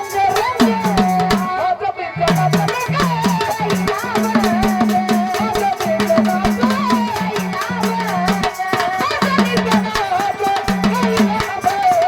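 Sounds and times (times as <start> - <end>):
drum with pitch-bending strokes: 0.0 - 1.6, 2.2 - 12.0
metallic ticking of small cymbals: 0.0 - 12.0
wavering melody line: 2.3 - 8.6.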